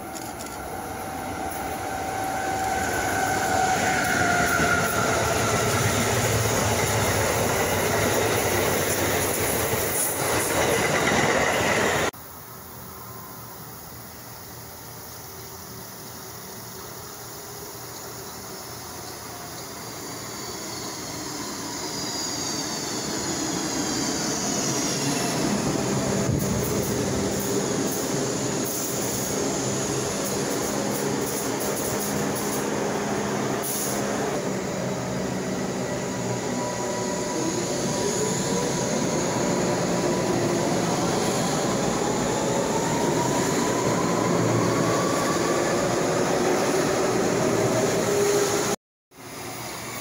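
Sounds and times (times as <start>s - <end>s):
high train whine falling in pitch: 0.0s - 14.0s
electric train pulling in: 0.0s - 50.0s.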